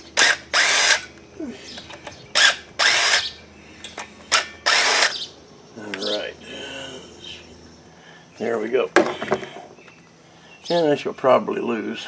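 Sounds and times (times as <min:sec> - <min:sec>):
power driver bursts: 0:00.0 - 0:01.1, 0:02.3 - 0:03.4, 0:04.2 - 0:05.3.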